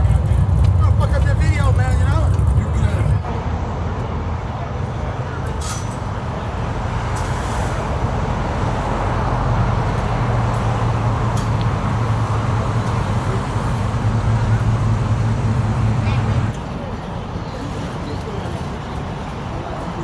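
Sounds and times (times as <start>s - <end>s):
car engine running: 0.0s - 3.3s, 9.4s - 16.6s.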